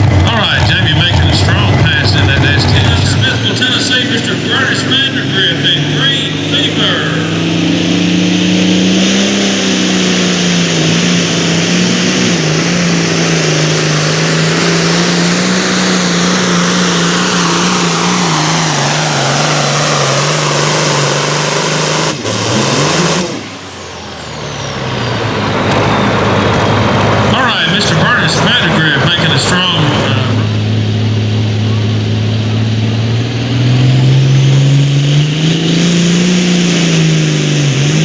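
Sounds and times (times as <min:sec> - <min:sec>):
pulling tractor engine roaring: 0:00.0 - 0:38.0.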